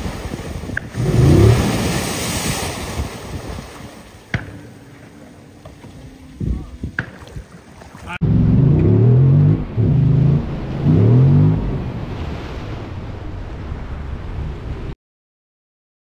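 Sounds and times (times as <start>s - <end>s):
engine revving: 1.0s - 1.8s, 8.2s - 12.1s
steady rushing noise: 8.2s - 15.0s.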